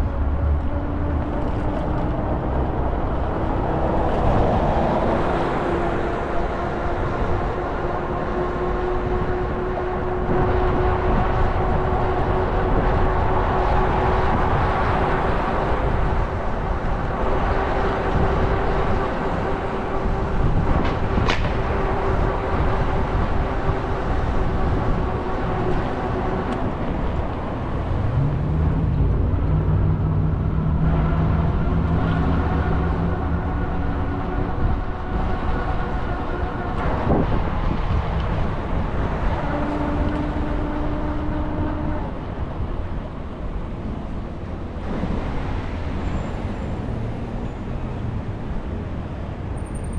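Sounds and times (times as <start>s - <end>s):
bus motor and road rumble: 0.0s - 49.9s
constant whine: 0.0s - 49.9s
low drive tone rising: 18.0s - 38.1s.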